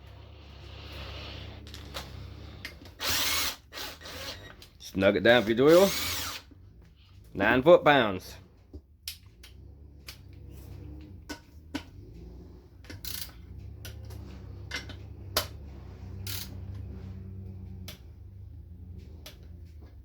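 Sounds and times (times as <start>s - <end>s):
low steady hum: 0.0s - 20.0s
torque wrench clicking: 12.9s - 13.4s, 16.3s - 16.5s.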